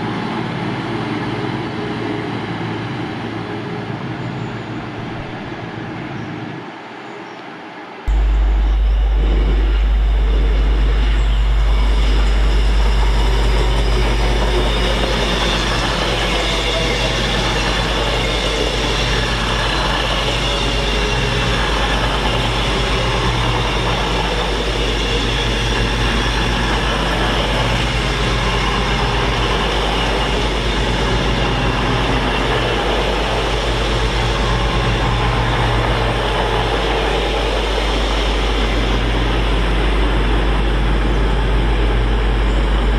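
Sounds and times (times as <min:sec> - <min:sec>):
train rumbling on rails: 0:00.0 - 0:42.9.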